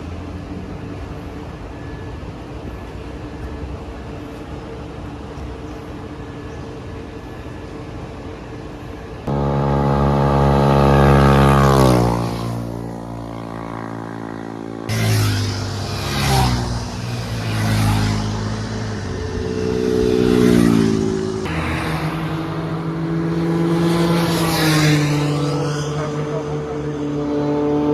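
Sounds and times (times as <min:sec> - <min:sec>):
steady engine drone: 0:00.0 - 0:27.9
motorcycle engines accelerating past: 0:09.3 - 0:27.9.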